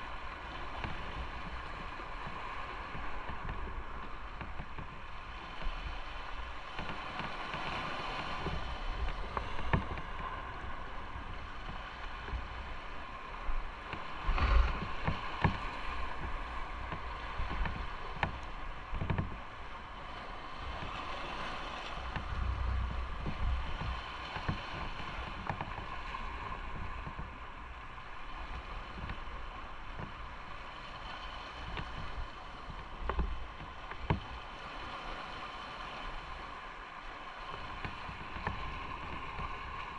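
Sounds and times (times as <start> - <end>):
wind rushing over microphone: 0.0 - 36.5
low thumps: 21.9 - 25.9.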